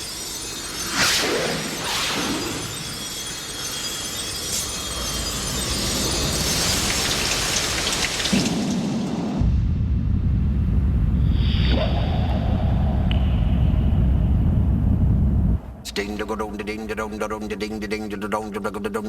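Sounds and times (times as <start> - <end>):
deep low rumble: 9.4 - 15.9.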